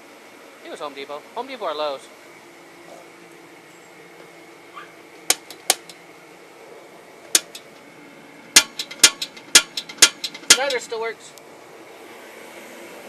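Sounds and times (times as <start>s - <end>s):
heater humming: 0.0s - 13.0s
sharp clicks: 7.3s - 7.7s.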